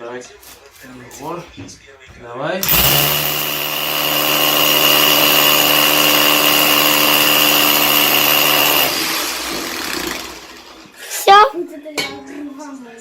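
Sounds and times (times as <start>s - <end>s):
power tool high whine: 2.6s - 11.0s.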